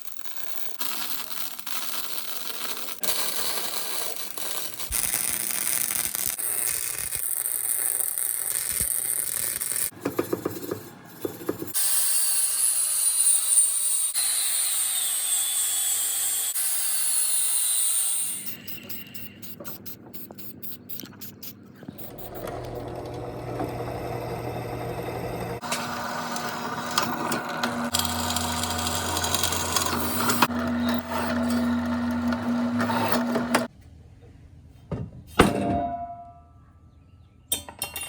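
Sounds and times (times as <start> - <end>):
steady motor hum: 21.9 - 33.7.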